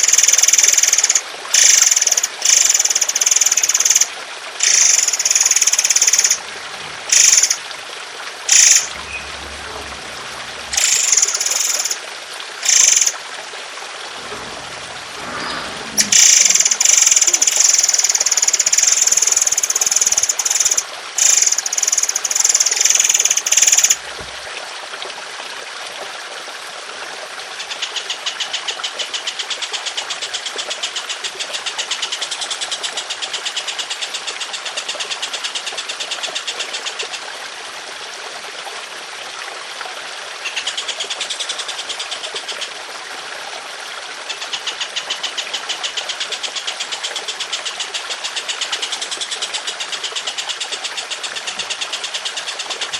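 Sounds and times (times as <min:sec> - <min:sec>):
bird rattling trills: 0:00.0 - 0:06.4, 0:07.0 - 0:07.6, 0:08.5 - 0:09.6, 0:10.2 - 0:12.0, 0:12.6 - 0:13.2, 0:15.1 - 0:24.0
songbird singing: 0:00.0 - 0:06.4, 0:07.1 - 0:07.7, 0:08.5 - 0:12.0, 0:12.6 - 0:13.2, 0:15.3 - 0:24.3
trickling water: 0:00.0 - 0:52.9.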